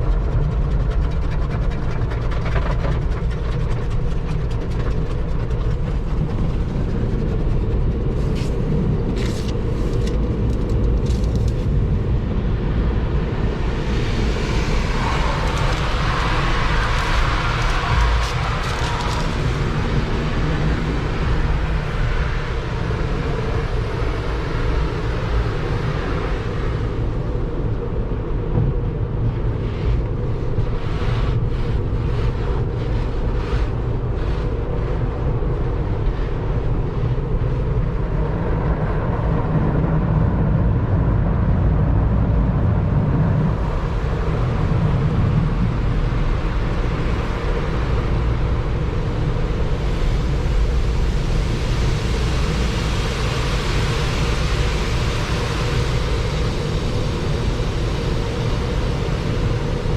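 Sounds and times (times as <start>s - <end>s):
car wash machinery rumbling: 0.0s - 26.2s.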